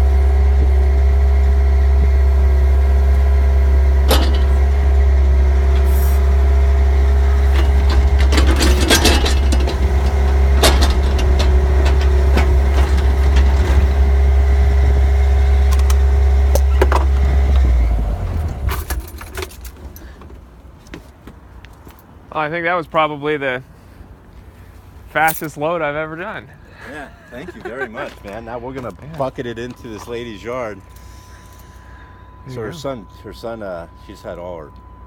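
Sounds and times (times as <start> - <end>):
excavator diesel engine running: 0.0 - 20.7, 26.9 - 35.0
metal clanks and rattles: 4.0 - 14.9, 18.4 - 20.4.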